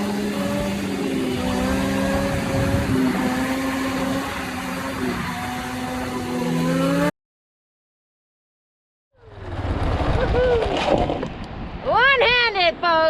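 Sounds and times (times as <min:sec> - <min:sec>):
motorcycle engine revving: 0:00.0 - 0:07.1, 0:09.2 - 0:11.2.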